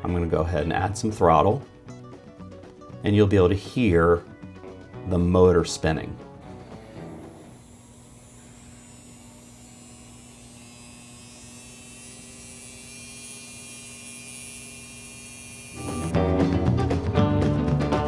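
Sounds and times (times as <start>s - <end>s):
electric motor hum: 6.4s - 16.2s
high whine: 6.4s - 16.4s.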